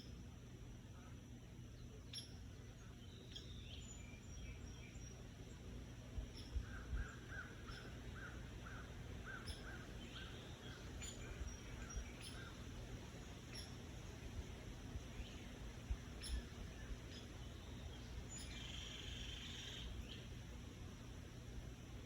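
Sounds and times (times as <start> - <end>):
faint bird chirps: 0.8 - 20.5
evenly spaced bird call notes: 6.4 - 14.0, 16.2 - 20.3.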